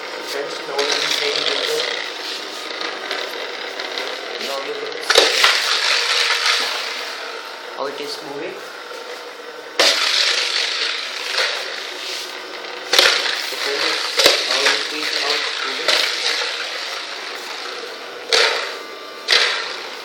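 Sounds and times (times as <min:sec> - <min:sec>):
toy motor whirring: 0:00.4 - 0:07.2, 0:09.8 - 0:18.7.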